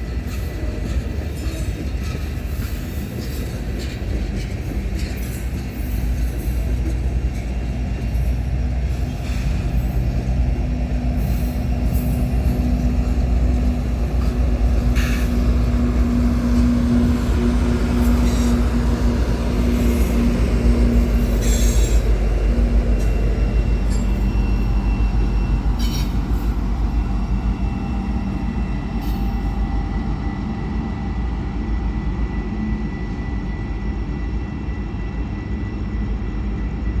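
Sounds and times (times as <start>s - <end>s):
freight train rumble: 0.0s - 37.0s
thin squealing tones: 23.0s - 27.8s.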